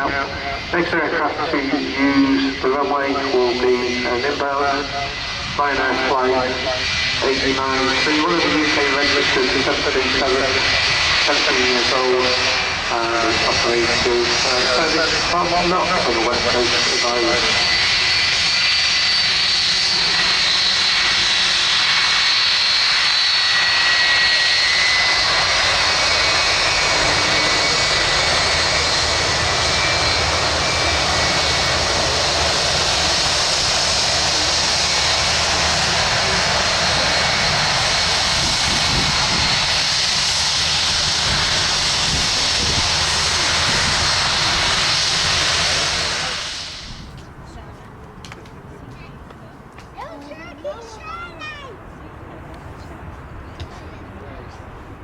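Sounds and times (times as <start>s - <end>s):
jet engine rush: 0.0s - 55.0s.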